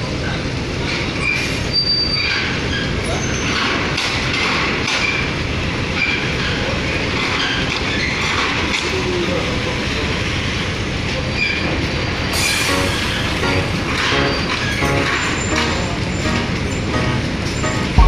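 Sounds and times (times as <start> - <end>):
ferry engines rumbling: 9.1 - 18.0.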